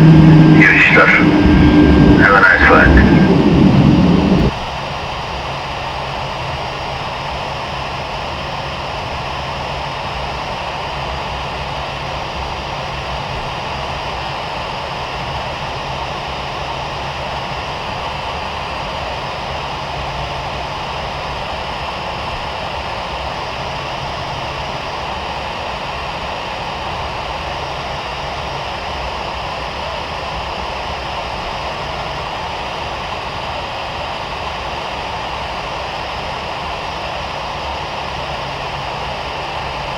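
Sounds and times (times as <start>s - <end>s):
cabin airflow hiss: 0.0s - 4.5s
jet engines running: 0.0s - 4.6s.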